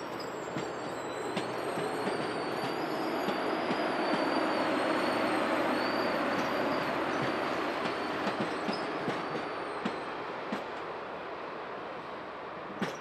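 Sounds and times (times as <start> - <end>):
high wheel squeal: 0.0 - 10.1
train wheels rumbling on rail: 0.0 - 11.0, 11.8 - 13.0.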